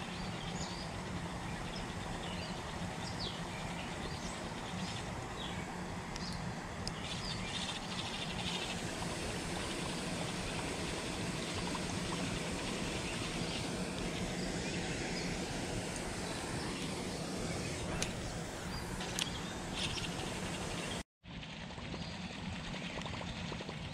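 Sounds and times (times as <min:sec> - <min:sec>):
low hum: 0:00.0 - 0:23.9
small bird chirping: 0:09.5 - 0:21.0.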